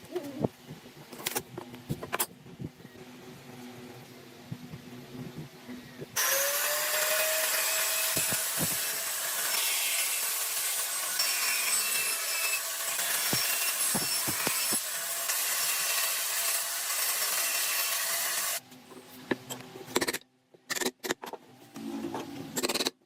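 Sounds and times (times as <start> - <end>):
power tool cutting wood: 6.2 - 18.6.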